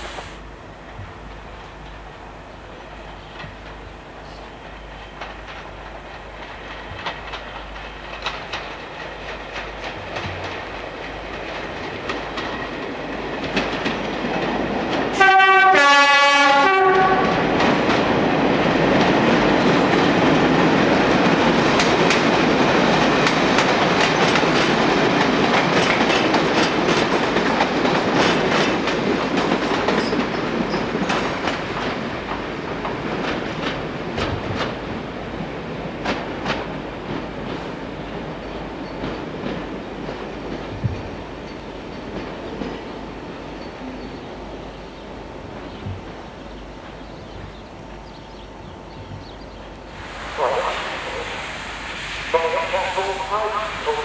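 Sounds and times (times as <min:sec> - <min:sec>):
train approaching: 0:00.0 - 0:54.0
two-tone train horn: 0:15.1 - 0:17.5.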